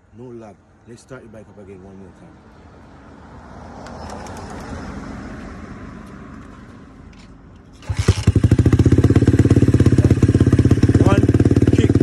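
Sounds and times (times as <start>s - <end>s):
dirt bike engine idling: 7.8s - 12.0s.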